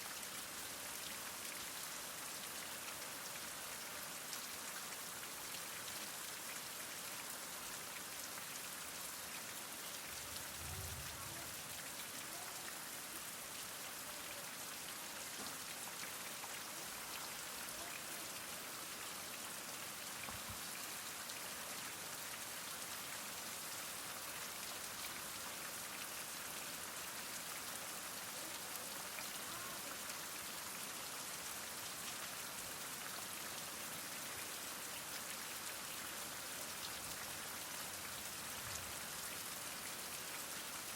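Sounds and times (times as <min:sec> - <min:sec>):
heavy rain falling: 0:10.0 - 0:13.4.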